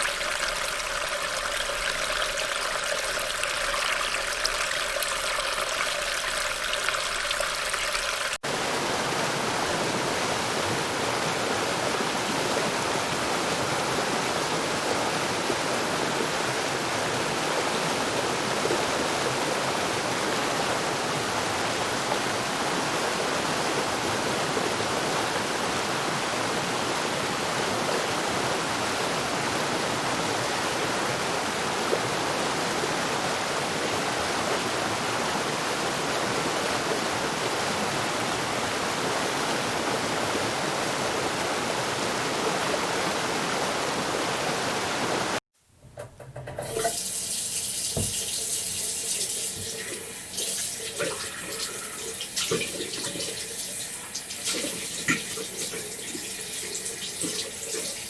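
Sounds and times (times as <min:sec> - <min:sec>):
stream rapids rushing: 0:00.0 - 0:04.4, 0:06.3 - 0:45.4
water draining into storm drain: 0:00.0 - 0:08.5, 0:46.4 - 0:58.0.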